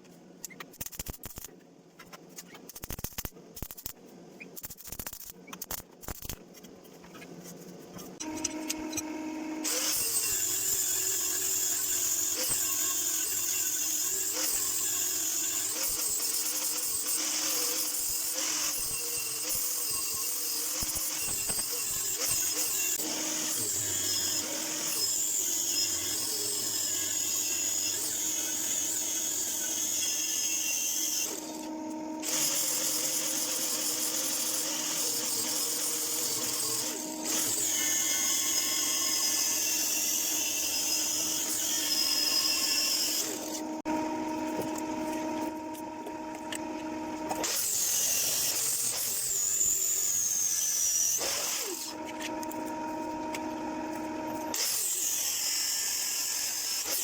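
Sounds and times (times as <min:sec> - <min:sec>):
power tool whining: 0:08.2 - 0:57.0.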